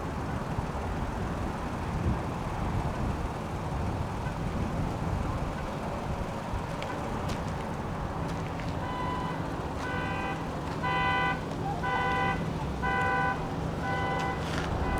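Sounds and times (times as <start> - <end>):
traffic: 0.0 - 14.9
wind: 0.0 - 14.9
car alarm horn beeping: 8.8 - 14.9.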